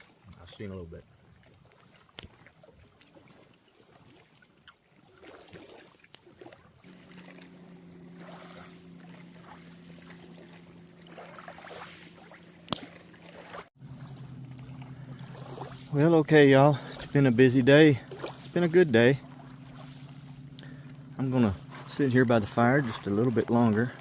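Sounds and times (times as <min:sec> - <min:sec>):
campfire crackling and popping: 0:00.4 - 0:04.4, 0:12.6 - 0:13.3
low steady hum: 0:06.8 - 0:24.0
high-pitched whine: 0:06.9 - 0:13.1.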